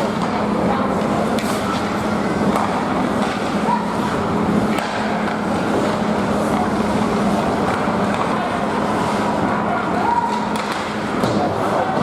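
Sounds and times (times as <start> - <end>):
sharp clacks of sticks or puck: 1.0 - 1.8, 2.4 - 3.5, 4.7 - 5.9, 7.7 - 8.5, 10.2 - 11.5.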